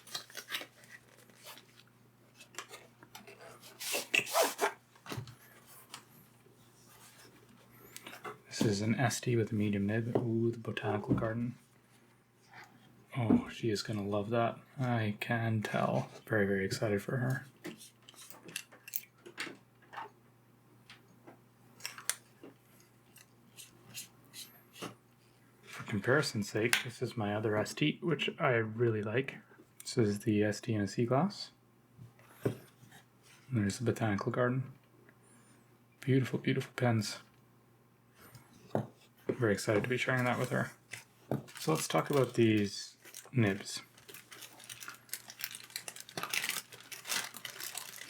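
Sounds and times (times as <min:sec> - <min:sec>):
rustling and scraping: 0:00.0 - 0:09.2
packaging clicks and rubbing: 0:40.2 - 0:48.0.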